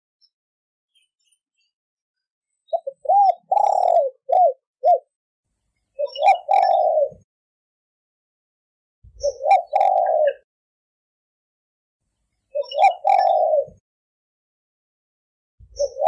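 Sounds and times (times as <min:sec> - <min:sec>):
dove cooing: 0:02.8 - 0:05.1, 0:06.0 - 0:07.3, 0:09.1 - 0:10.4, 0:12.6 - 0:13.8, 0:15.7 - 0:16.0.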